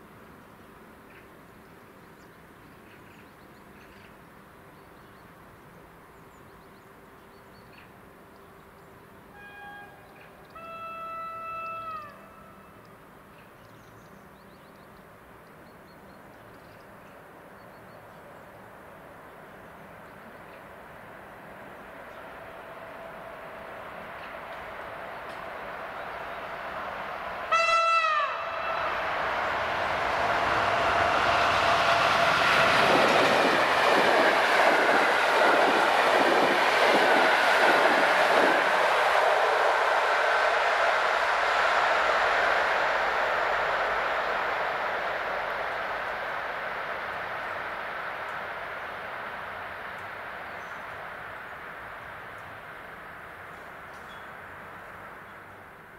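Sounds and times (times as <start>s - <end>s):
train air horn: 9.3s - 12.8s, 27.4s - 33.4s
train rumble approaching: 16.0s - 55.9s.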